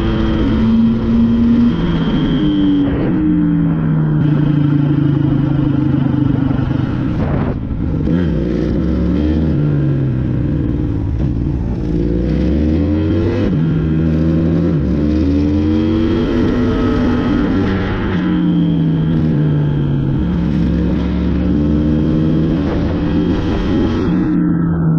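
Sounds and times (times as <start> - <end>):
dirt bike engine running hard: 0.0 - 24.9.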